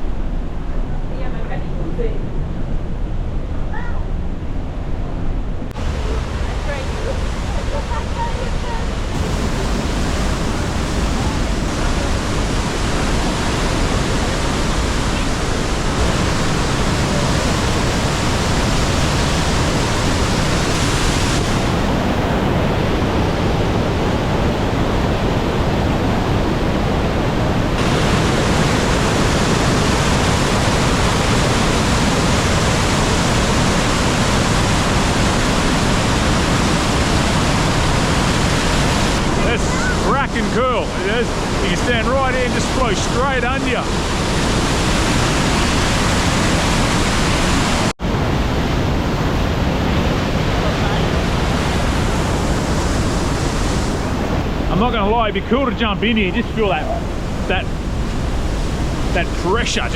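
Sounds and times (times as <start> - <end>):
waterfall rushing: 5.7 - 59.9.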